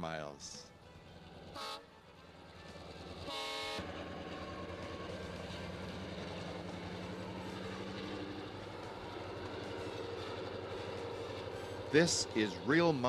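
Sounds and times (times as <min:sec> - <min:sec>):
locomotive engines rumbling: 0:00.0 - 0:13.0
train horn blast: 0:01.5 - 0:01.9, 0:03.2 - 0:04.8.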